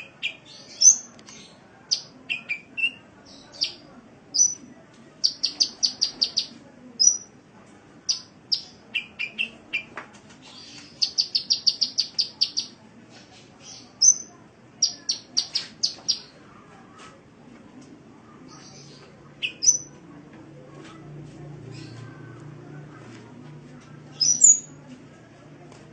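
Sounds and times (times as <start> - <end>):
bird chirping: 4.4 - 7.3, 8.1 - 9.9, 10.5 - 12.8, 13.6 - 16.3, 18.5 - 20.0, 24.1 - 24.7.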